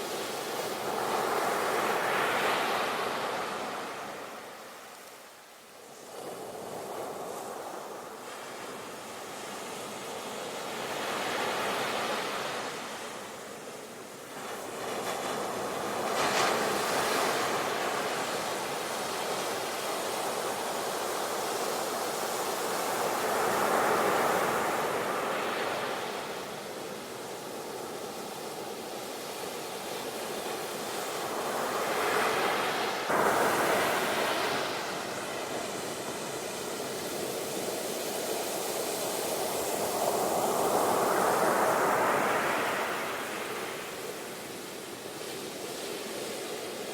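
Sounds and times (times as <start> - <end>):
sea waves breaking on shore: 14.3 - 46.9.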